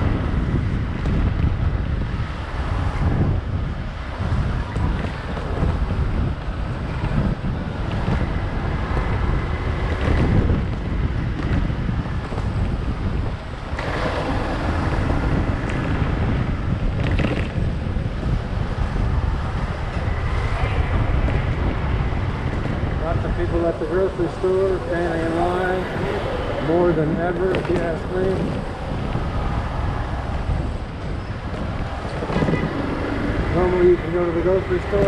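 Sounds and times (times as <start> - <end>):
road noise: 0.0 - 35.0
wind buffeting microphone: 0.0 - 35.0
motorcycle engine: 18.8 - 35.0.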